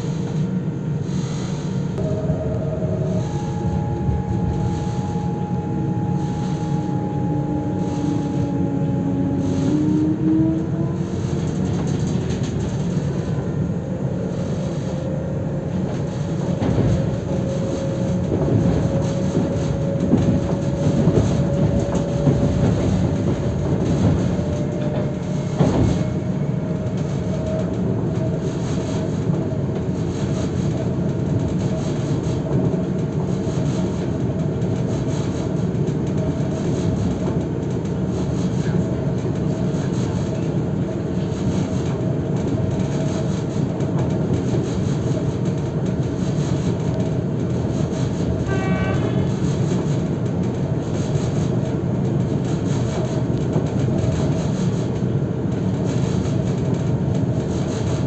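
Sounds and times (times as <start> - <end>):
thin whine: 0.0 - 11.4
passenger train rumbling: 0.0 - 58.0.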